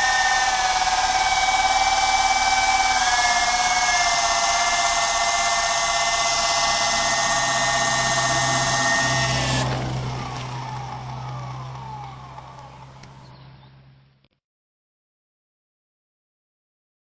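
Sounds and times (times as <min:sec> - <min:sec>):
toy helicopter rotor whining: 0:00.0 - 0:13.4.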